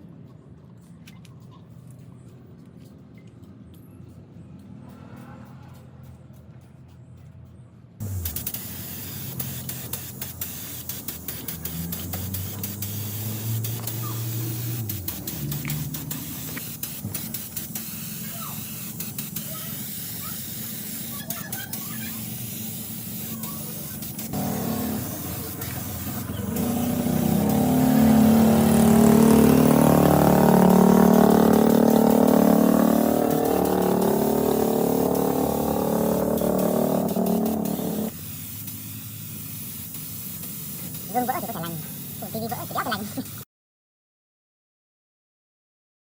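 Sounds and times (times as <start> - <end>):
diesel engine starting and running: 7.4 - 39.4
hiss with clicks: 8.0 - 43.4.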